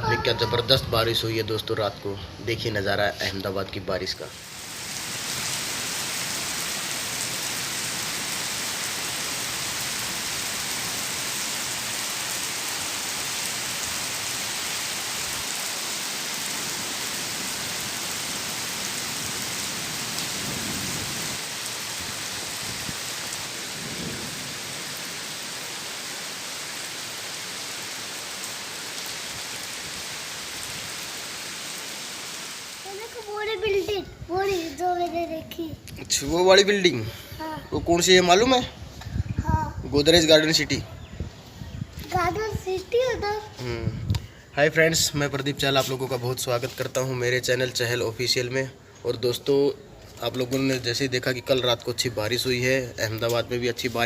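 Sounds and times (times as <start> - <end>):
heavy rain pouring: 3.9 - 35.4.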